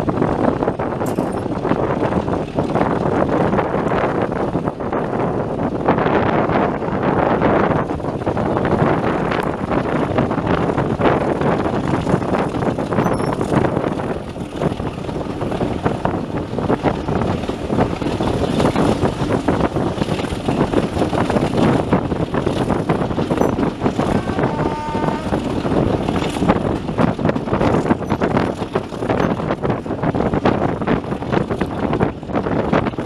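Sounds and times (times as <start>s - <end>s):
vehicle rumbling and rattling: 0.0s - 33.0s
wind buffeting microphone: 0.0s - 33.0s
faint high tone: 24.1s - 25.4s.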